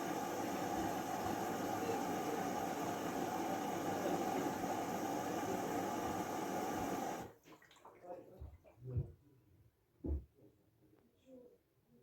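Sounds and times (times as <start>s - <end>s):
washing machine running: 0.0s - 7.3s.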